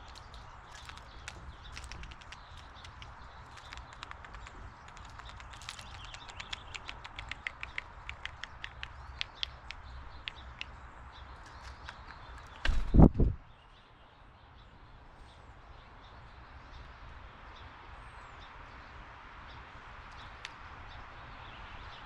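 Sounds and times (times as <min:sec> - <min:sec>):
birds pecking at seed: 0:00.0 - 0:13.0.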